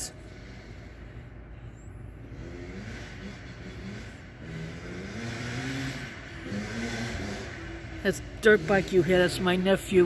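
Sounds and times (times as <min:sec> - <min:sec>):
dirt bike engine revving: 0:02.2 - 0:10.0.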